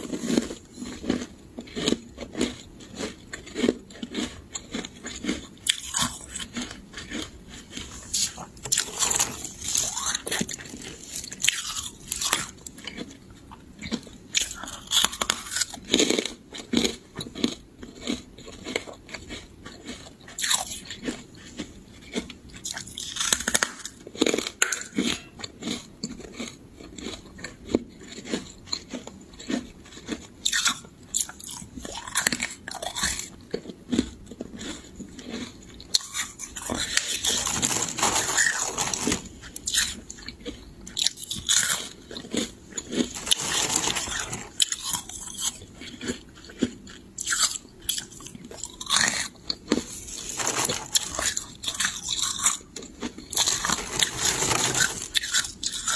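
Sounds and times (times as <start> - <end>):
frost being chewed: 0.0 - 55.9.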